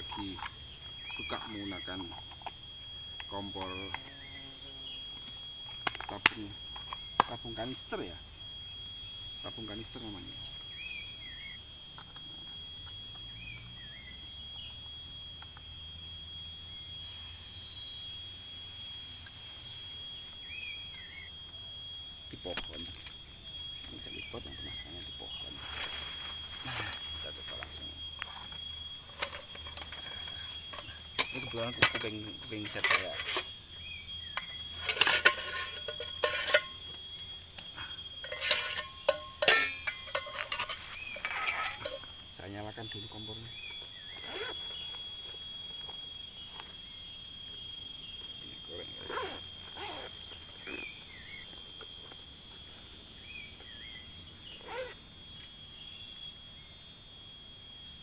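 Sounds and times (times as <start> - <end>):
insects droning: 0.0 - 58.0
bird chirping: 0.1 - 2.2, 10.7 - 11.7, 20.4 - 21.4, 23.9 - 44.9
metal cookware clinking: 34.8 - 36.7, 38.2 - 41.8.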